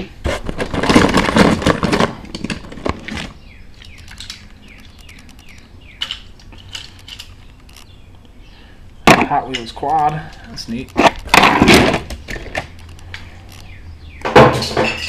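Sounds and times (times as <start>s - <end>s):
toy cars clattering in a box: 0.4s - 7.8s
sharp clicks: 3.8s - 8.4s, 9.0s - 14.3s.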